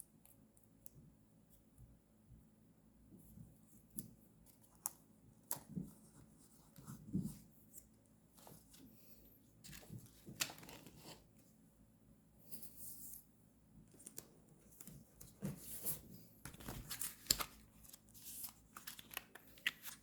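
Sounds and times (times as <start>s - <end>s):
paper rustling: 9.6s - 11.3s, 14.0s - 20.0s.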